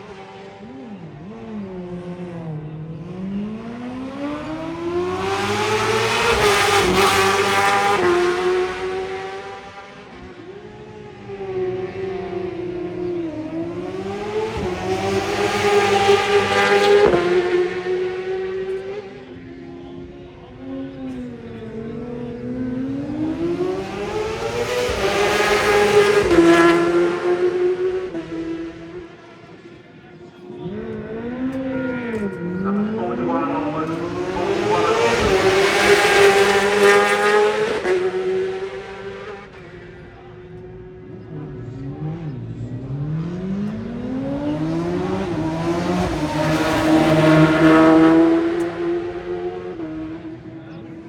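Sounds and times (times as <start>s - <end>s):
racing motorcycle passing by: 30.5s - 39.9s.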